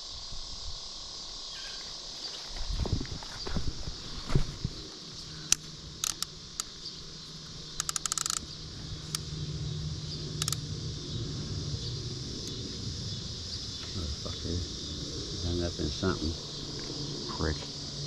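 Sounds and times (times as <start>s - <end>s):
insect chorus: 0.0s - 18.0s
fishing reel clicking: 5.5s - 6.7s, 7.8s - 8.4s, 10.4s - 10.6s.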